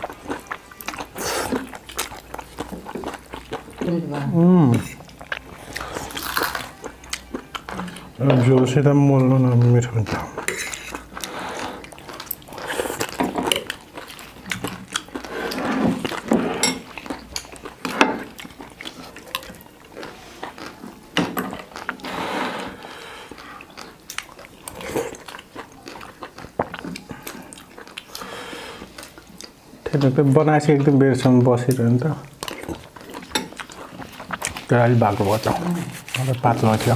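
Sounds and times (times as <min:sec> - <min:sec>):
chewing: 0:00.0 - 0:36.9
slurping broth: 0:01.0 - 0:01.9, 0:10.4 - 0:13.6, 0:15.0 - 0:17.0, 0:21.6 - 0:23.7.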